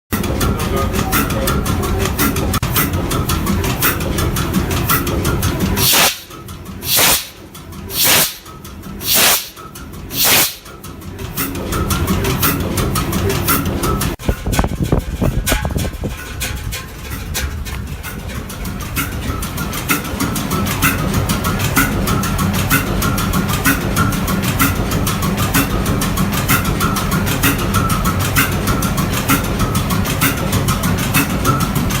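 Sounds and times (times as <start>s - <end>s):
diesel engine rumble: 0.2s - 32.0s
loud hissing puffs: 5.8s - 10.6s.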